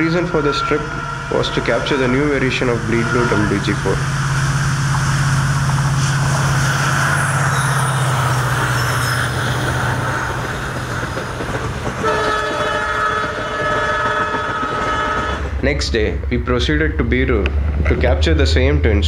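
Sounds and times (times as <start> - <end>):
locomotive horn chord: 0.0 - 8.0, 12.0 - 15.5
diesel locomotive engine drone: 0.0 - 19.0.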